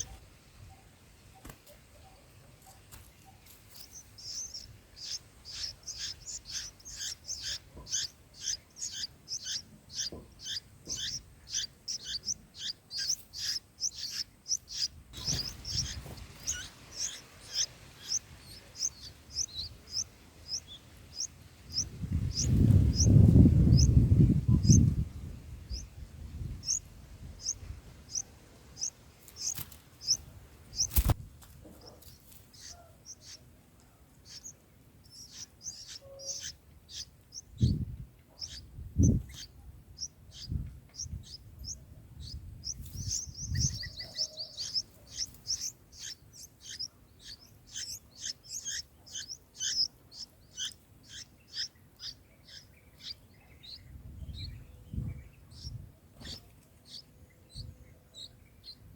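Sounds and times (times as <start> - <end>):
small birds chirping: 0.0 - 58.9.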